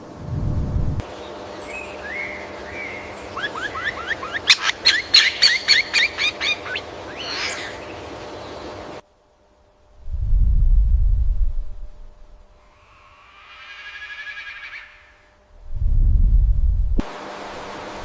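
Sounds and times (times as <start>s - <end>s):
bird singing: 1.0s - 9.0s, 12.7s - 15.4s.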